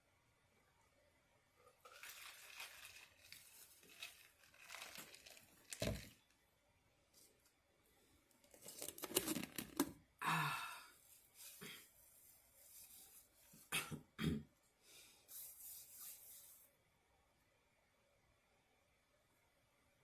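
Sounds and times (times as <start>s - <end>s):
food packaging rustling and scraping: 1.7s - 6.4s, 8.4s - 10.0s.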